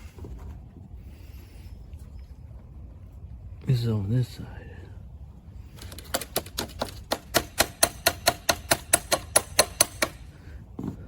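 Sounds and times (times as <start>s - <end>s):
sharp mechanical clicks: 5.8s - 10.2s.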